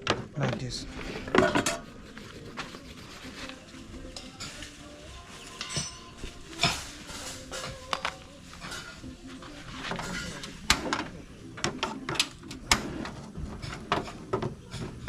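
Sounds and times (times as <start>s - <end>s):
faint background music: 0.0s - 15.0s
metal pot and utensils clinking: 4.1s - 15.0s.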